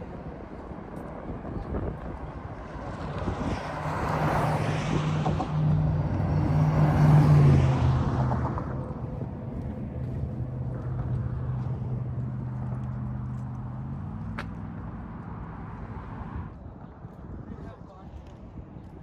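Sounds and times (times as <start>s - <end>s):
vehicle driving past: 3.2s - 14.4s.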